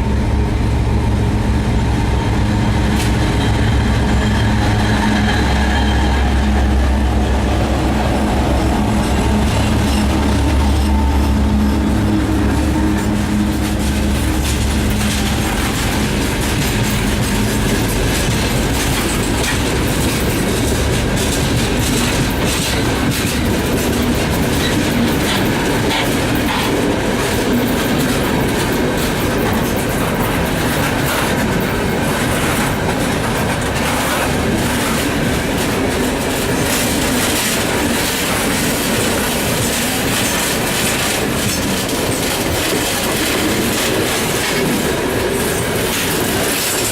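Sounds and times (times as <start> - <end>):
diesel locomotive engine drone: 0.0 - 46.9
train wheels clacking over rail joints: 2.0 - 46.9.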